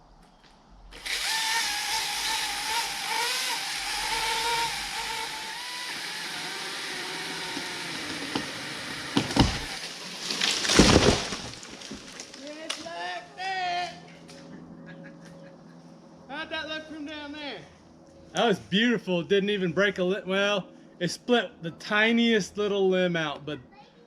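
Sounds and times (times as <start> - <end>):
chainsaw cutting at full throttle: 0.9 - 10.0
wood cracking: 1.0 - 12.9
tree crashing down: 6.8 - 12.9.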